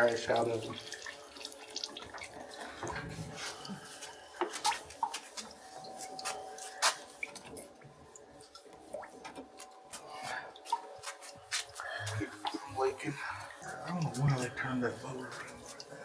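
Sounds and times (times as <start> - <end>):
fluid dripping: 0.0 - 16.0.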